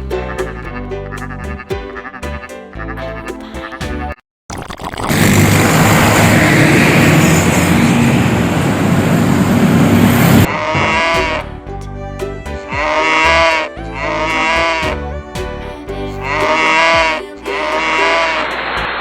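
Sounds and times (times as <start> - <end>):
music: 0.0 - 4.2, 10.7 - 19.0
loud even rushing noise: 5.1 - 11.4.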